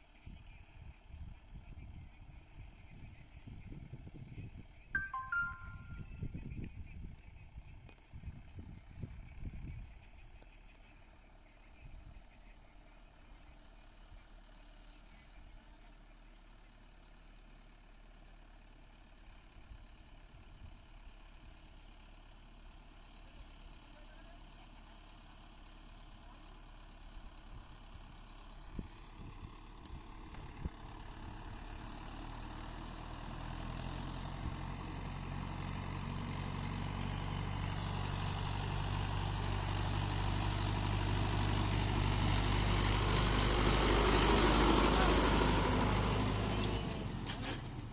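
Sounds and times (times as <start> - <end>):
tractor diesel engine: 8.1 - 47.9.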